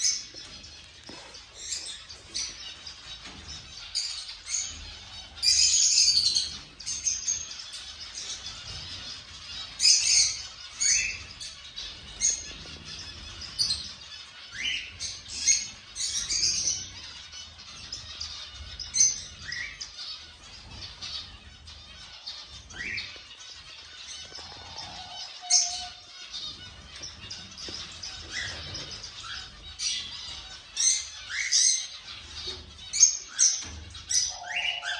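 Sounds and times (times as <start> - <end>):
cockatiels whistling and chirping: 13.1 - 16.9, 18.8 - 19.9, 22.7 - 23.2, 24.3 - 26.0, 27.6 - 34.9.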